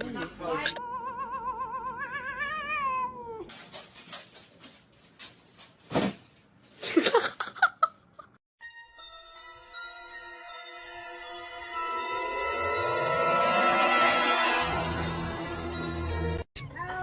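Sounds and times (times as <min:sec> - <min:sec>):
cat yowling: 0:00.8 - 0:03.5
light bell-like music: 0:08.6 - 0:16.5.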